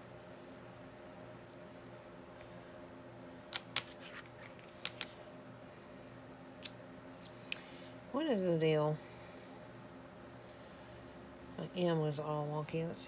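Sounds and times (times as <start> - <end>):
steady low hum: 0.0 - 13.0
light clicks of craft items: 3.6 - 5.2.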